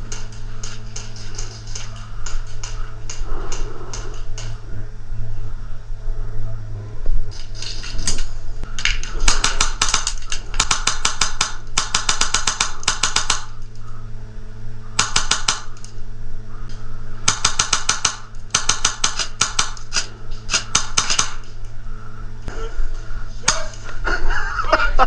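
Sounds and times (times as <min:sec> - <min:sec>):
airsoft gun full-auto bursts: 0:09.1 - 0:13.6, 0:15.0 - 0:15.8, 0:17.2 - 0:21.4.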